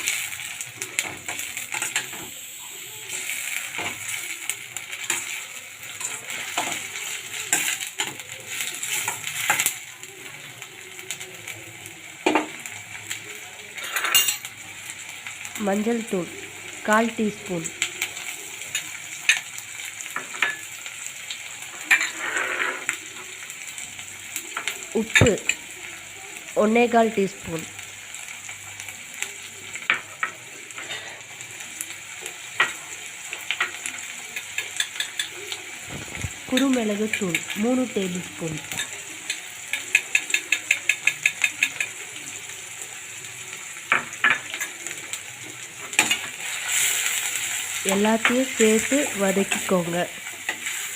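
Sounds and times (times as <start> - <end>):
food sizzling in oil: 0.0 - 50.9
spatula scraping a pan: 21.8 - 23.0, 30.8 - 31.3.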